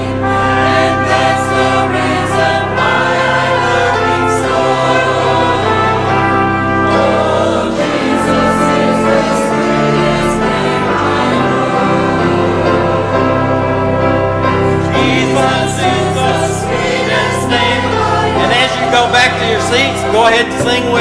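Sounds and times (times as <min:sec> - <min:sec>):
church choir singing gospel: 0:00.0 - 0:21.0.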